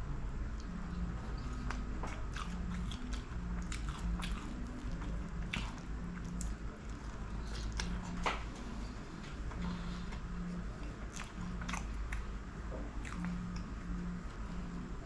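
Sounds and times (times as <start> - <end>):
wet chewing: 0.6 - 8.4, 9.6 - 12.3, 13.0 - 14.0.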